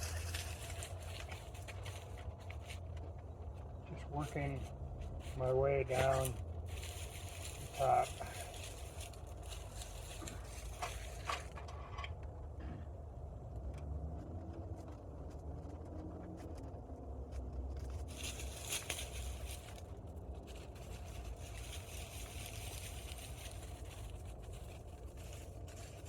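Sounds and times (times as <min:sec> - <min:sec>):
steady low rumble: 0:00.0 - 0:26.0
hands clicking and scraping parts: 0:07.3 - 0:12.3.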